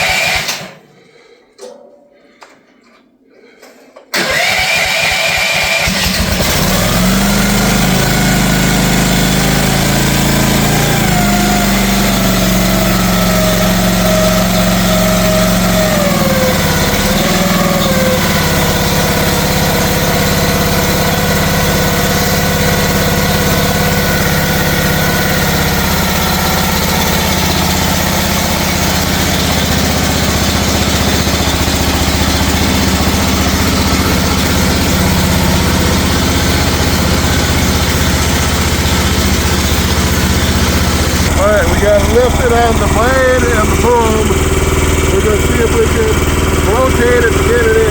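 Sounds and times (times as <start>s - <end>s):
mini excavator engine running: 0.0s - 0.8s, 4.1s - 47.9s.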